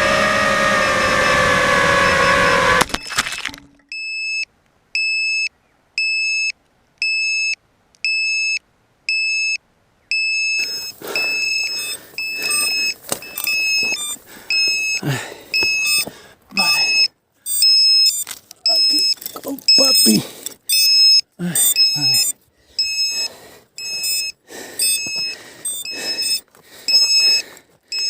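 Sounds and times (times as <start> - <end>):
rustling and crunching: 2.8 - 3.8, 10.6 - 16.6, 17.5 - 20.7
high-pitched buzzer beeping: 10.2 - 28.0.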